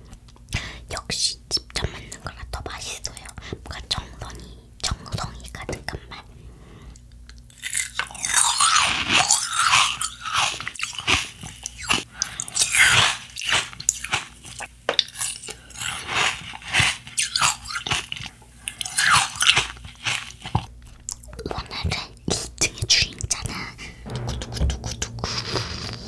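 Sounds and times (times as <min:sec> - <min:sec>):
crunching and chewing sweets: 0:07.0 - 0:22.6.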